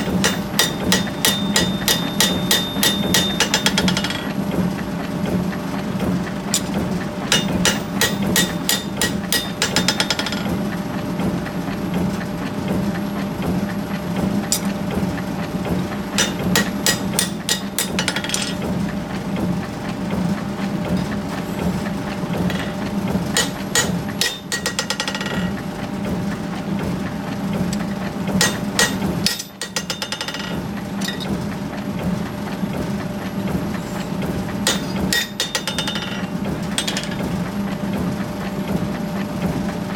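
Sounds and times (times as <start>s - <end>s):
hammer striking hot steel: 0.0s - 4.3s, 7.3s - 10.5s, 14.5s - 14.8s, 16.2s - 18.6s, 22.4s - 25.5s, 28.4s - 31.3s, 34.6s - 37.2s
low machinery hum: 0.0s - 39.9s.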